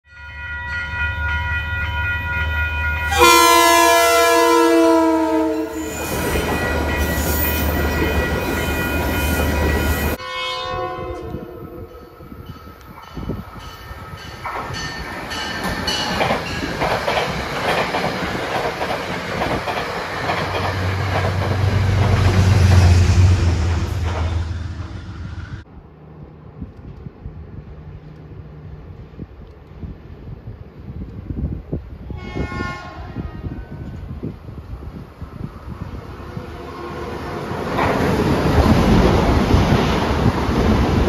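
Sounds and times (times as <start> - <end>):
crossing bells ringing: 0.1 - 4.2, 5.4 - 10.5, 11.6 - 16.9
train horn: 3.0 - 7.8, 9.2 - 12.2, 32.1 - 33.9, 36.4 - 37.5
train wheels on rail: 4.6 - 10.2, 11.1 - 41.0
train rumble: 11.1 - 41.0.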